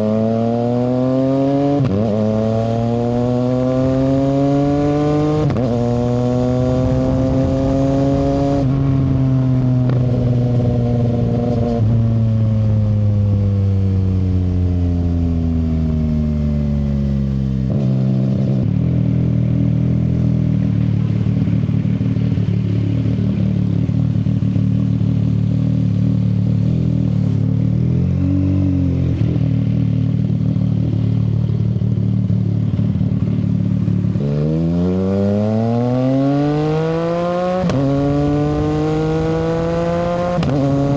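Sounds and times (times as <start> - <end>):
motorcycle engine: 0.0 - 40.9.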